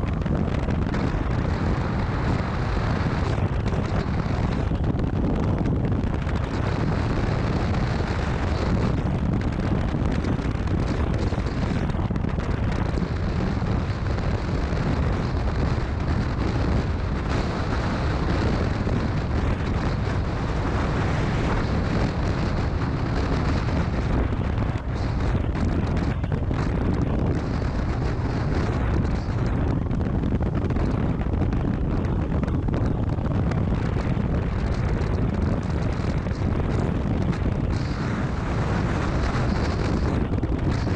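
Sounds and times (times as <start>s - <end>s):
road noise: 0.0s - 40.9s
wind rushing over microphone: 0.0s - 40.9s.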